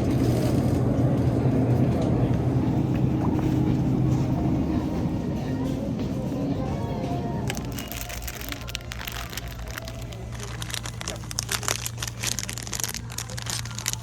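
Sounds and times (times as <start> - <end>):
steady low hum: 0.0 - 14.0
packaging crinkling: 7.5 - 14.0.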